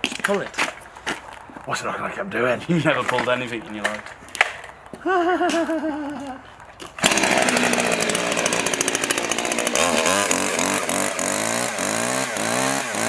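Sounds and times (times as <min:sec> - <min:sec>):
chainsaw pull-started: 0:06.9 - 0:13.0
chainsaw revving: 0:07.0 - 0:13.0.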